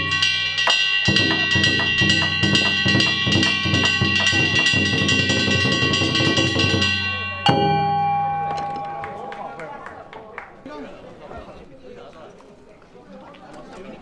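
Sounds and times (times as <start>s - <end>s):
drums and gongs rhythm: 0.0s - 7.9s.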